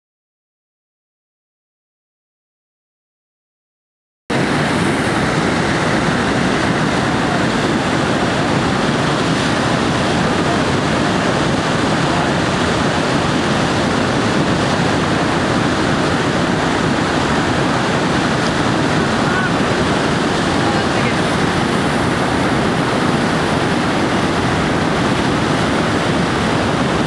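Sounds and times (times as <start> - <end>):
whitewater rushing: 4.3 - 27.0.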